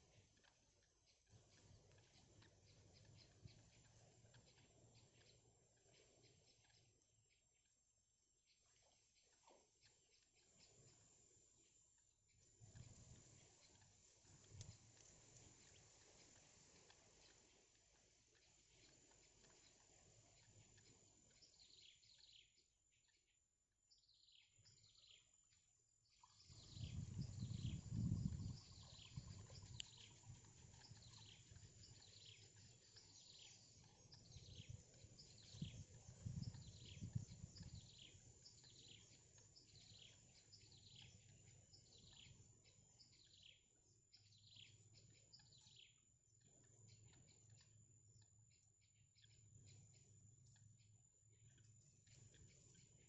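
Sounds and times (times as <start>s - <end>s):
bird chirping: 0.0s - 7.7s, 8.4s - 53.0s.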